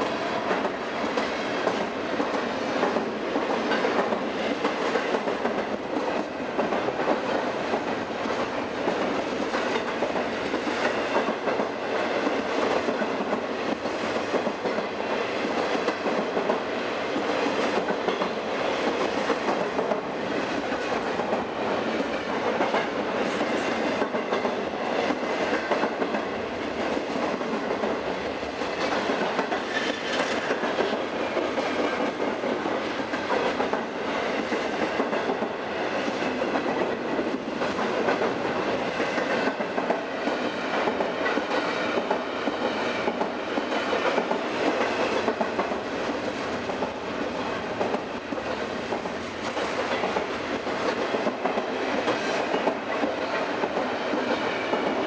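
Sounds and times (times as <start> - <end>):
freight train wheels on rails: 0.0 - 55.0
rapid rail clicks: 0.0 - 55.0.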